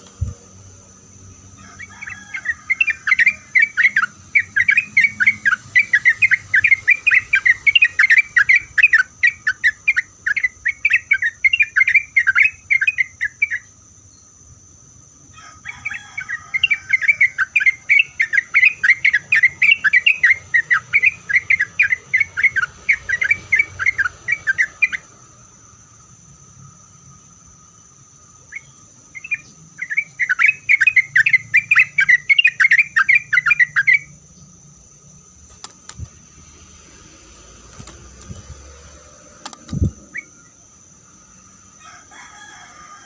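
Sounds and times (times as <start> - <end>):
bulbul warbling song: 1.2 - 13.8, 16.0 - 25.2, 28.4 - 34.2.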